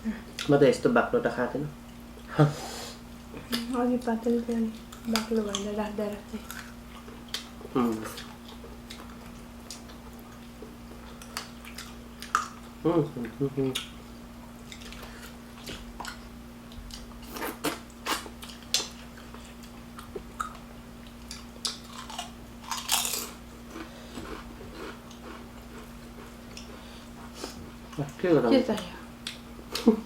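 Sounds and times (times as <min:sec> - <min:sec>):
chewing and biting: 0:06.4 - 0:12.7, 0:14.6 - 0:26.8.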